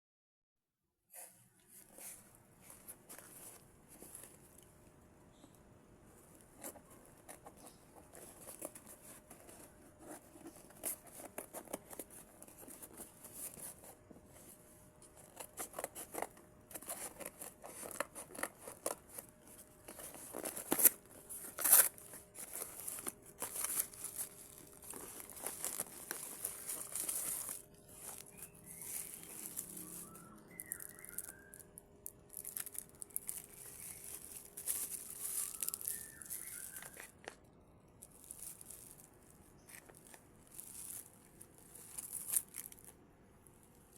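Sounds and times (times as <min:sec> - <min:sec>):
plastic crinkling and tearing: 0:15.1 - 0:37.4, 0:38.0 - 0:43.0.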